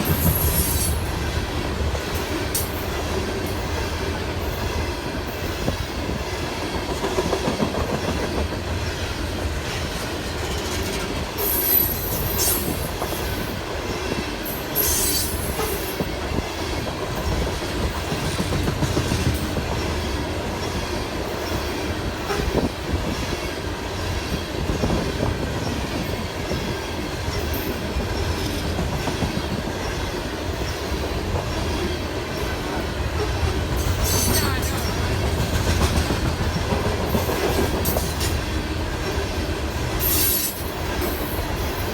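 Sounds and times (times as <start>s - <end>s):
train cars rumbling past: 0.0s - 41.9s
high wheel squeals: 0.2s - 1.0s, 14.8s - 15.8s
wheels clacking over rail joints: 24.1s - 41.8s.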